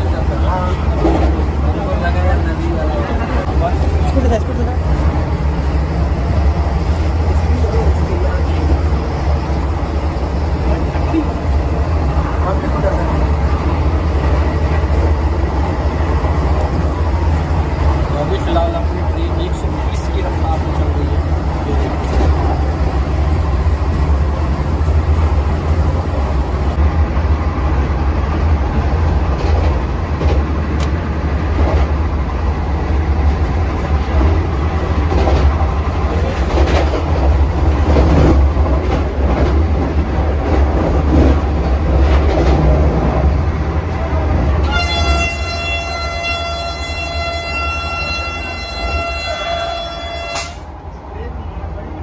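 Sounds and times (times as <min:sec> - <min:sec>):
train rumbling: 0:00.0 - 0:52.0
train horn: 0:44.6 - 0:50.6.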